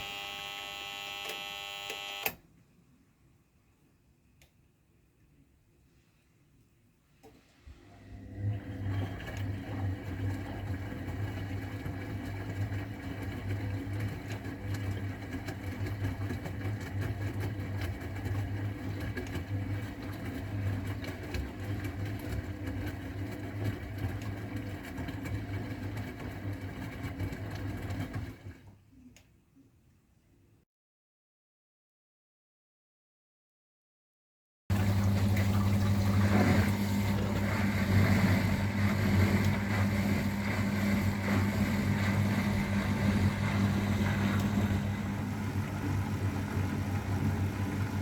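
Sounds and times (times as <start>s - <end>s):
washing machine humming: 0.0s - 2.4s, 7.2s - 29.0s, 34.7s - 48.0s.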